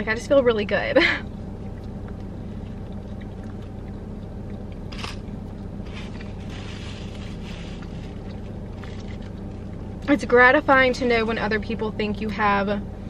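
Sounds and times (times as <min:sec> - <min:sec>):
car cabin low hum: 0:00.0 - 0:13.0
person biting and chewing: 0:02.2 - 0:09.8
sharp crunch of food: 0:04.5 - 0:09.6.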